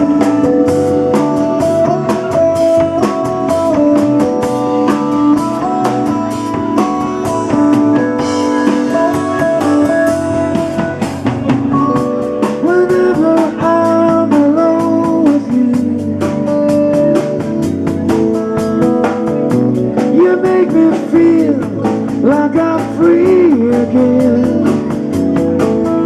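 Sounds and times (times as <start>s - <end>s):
guitar: 0.0s - 26.0s
live band instrumental: 0.0s - 26.0s
steady drum beat: 0.0s - 26.0s.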